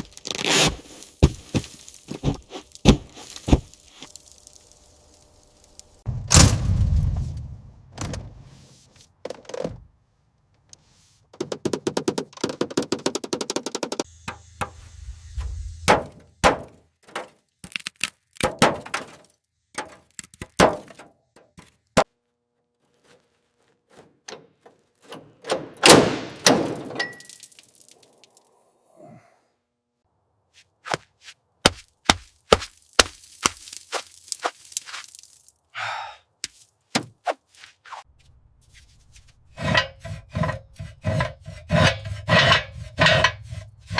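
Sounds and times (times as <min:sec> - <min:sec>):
brief low hum: 0:14.1 - 0:15.9.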